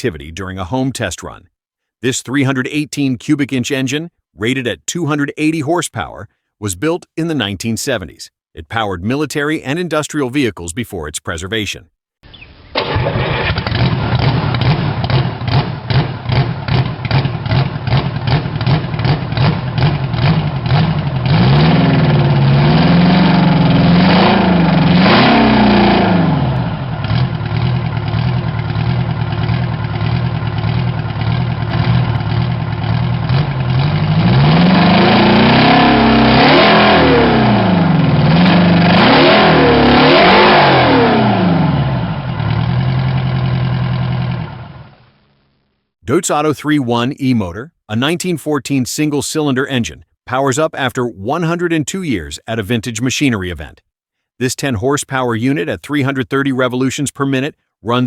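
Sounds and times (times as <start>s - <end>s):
diesel engine running and revving: 12.8s - 45.0s.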